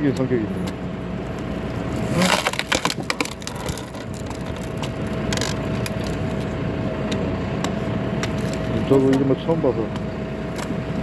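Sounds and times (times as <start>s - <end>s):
tractor engine humming: 0.0s - 11.0s
log cracking and splintering: 1.3s - 6.6s, 7.6s - 9.2s.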